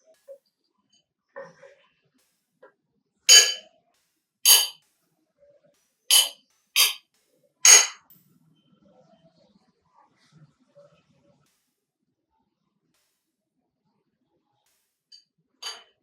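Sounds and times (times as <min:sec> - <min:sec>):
metal utensil clinking on steel: 0:03.3 - 0:03.6, 0:04.5 - 0:04.8, 0:06.1 - 0:07.0, 0:07.7 - 0:08.0, 0:15.6 - 0:15.8.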